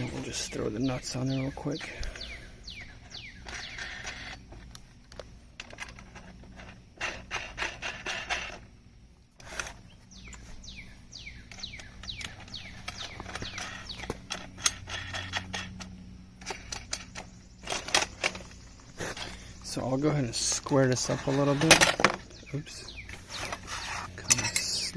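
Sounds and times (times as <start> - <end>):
metal nuts clicking and rattling: 11.4 - 19.4, 23.3 - 24.9.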